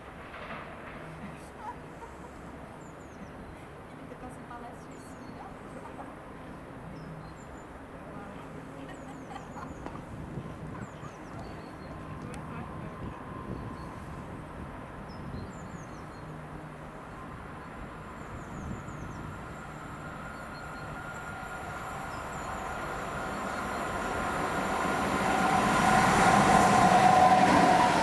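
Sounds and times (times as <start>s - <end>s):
train rumbling: 0.0s - 3.4s, 8.8s - 28.0s
rising train whine: 9.8s - 28.0s.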